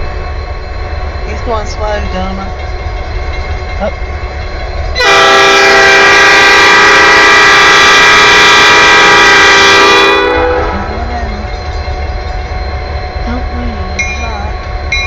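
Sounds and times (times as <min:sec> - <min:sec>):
low rumble of passing train: 0:00.0 - 0:15.0
locomotive air horn: 0:05.0 - 0:10.9.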